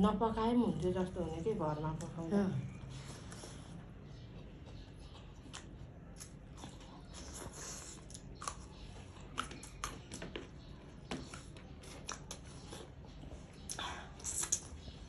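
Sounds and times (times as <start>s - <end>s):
chewing crunchy food: 2.8s - 15.0s.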